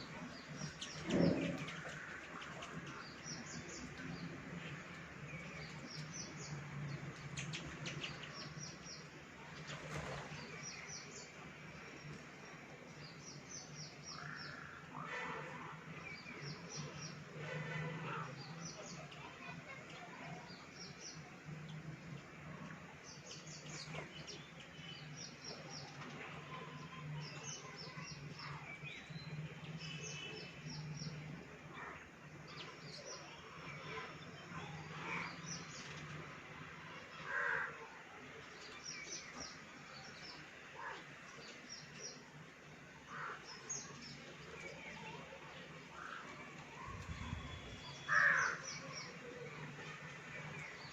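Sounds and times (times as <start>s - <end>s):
birds chirping: 0.0s - 50.9s.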